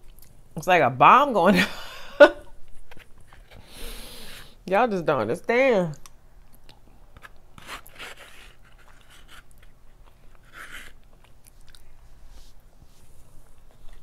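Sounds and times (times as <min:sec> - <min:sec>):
soft chewing: 0:00.0 - 0:00.4, 0:05.9 - 0:14.0.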